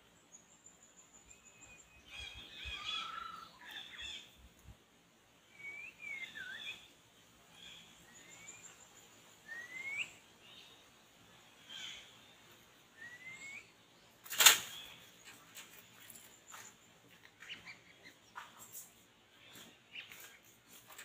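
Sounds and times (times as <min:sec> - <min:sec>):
songbird whistled notes: 0:05.5 - 0:06.9, 0:09.4 - 0:10.2, 0:13.0 - 0:13.7.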